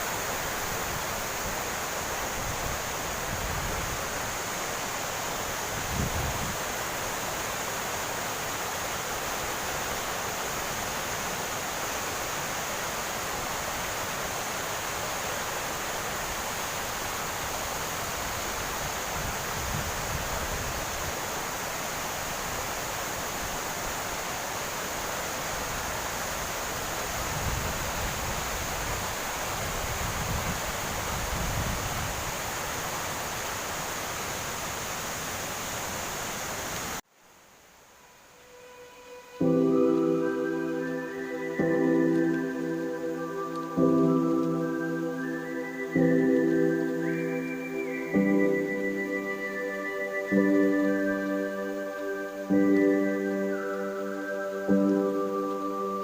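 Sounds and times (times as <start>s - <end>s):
waterfall rushing: 0.0s - 37.0s, 37.8s - 56.0s.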